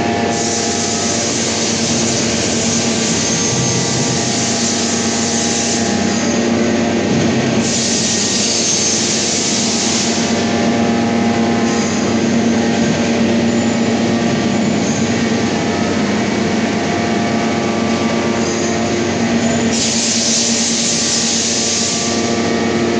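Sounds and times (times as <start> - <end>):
industrial machinery humming: 0.0 - 22.9
loud hiss: 0.3 - 6.4, 7.6 - 10.5, 19.7 - 22.3.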